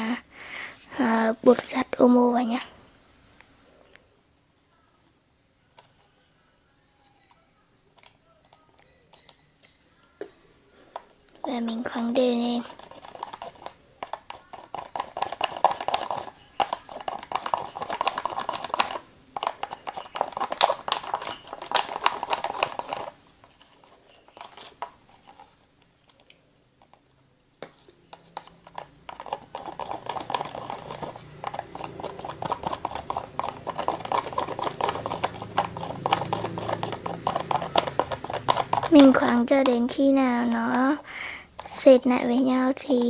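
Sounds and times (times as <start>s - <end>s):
utensil clicking and scraping slime: 10.9s - 27.0s, 27.6s - 43.0s.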